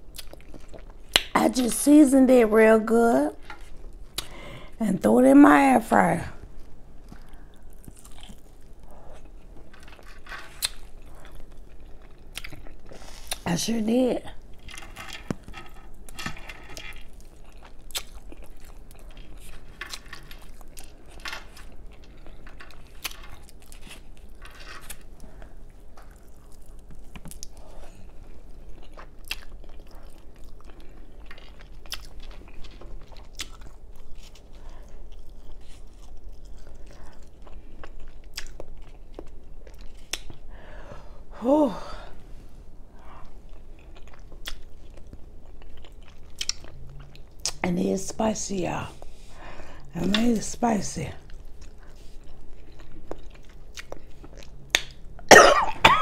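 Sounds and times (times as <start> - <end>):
close-miked chewing and biting: 0.0 - 1.4, 6.5 - 13.5, 14.4 - 40.5, 43.2 - 47.6, 51.2 - 55.2.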